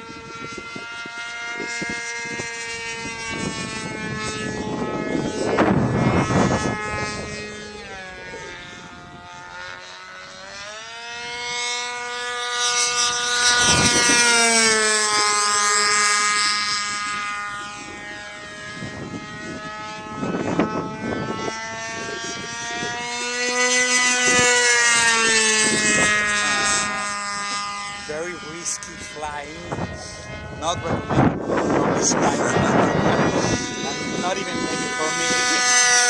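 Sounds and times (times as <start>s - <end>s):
model airplane engine droning: 0.0s - 36.0s.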